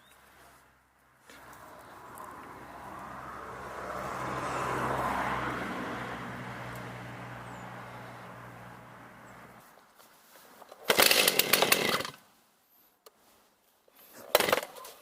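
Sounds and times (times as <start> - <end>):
vehicle passing by: 1.1 - 9.7.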